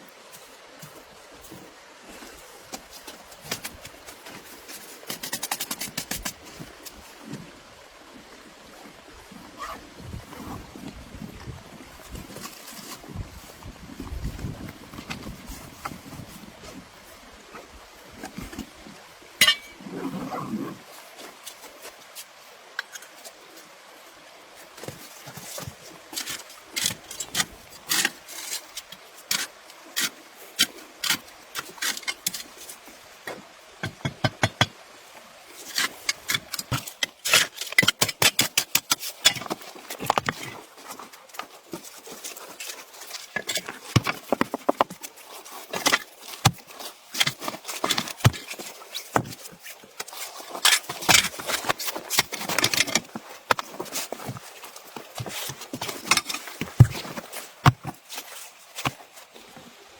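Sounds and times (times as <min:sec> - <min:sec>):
sharp knocks and crunches: 0:50.6 - 0:58.1.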